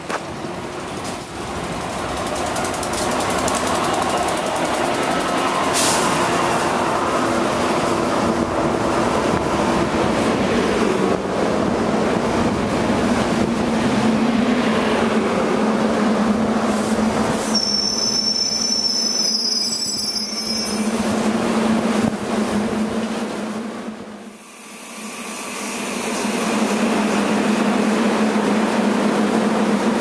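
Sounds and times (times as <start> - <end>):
train rolling: 0.0 - 30.0
brakes squealing: 16.7 - 21.2.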